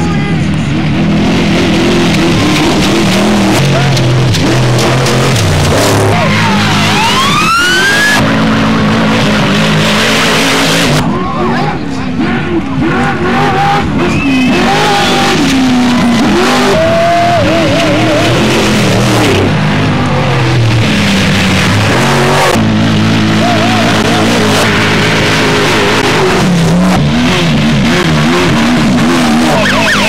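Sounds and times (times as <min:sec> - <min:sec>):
trucks racing at speed: 0:00.0 - 0:30.0
voices shouting: 0:11.0 - 0:18.6, 0:23.3 - 0:24.6, 0:29.4 - 0:30.0.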